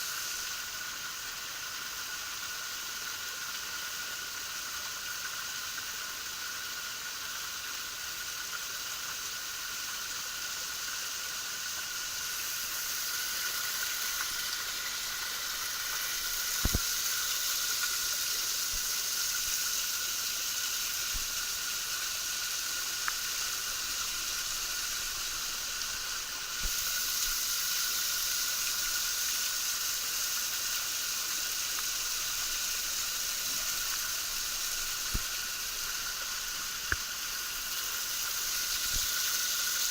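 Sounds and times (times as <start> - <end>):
waterfall splashing: 22.1 - 39.9.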